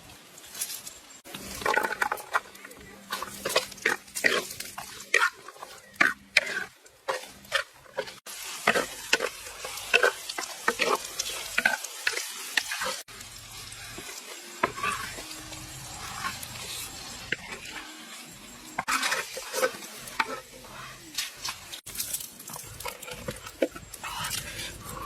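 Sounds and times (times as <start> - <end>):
food sizzling in a pan: 0.0 - 25.0
utensil scraping a pan: 1.2 - 25.0.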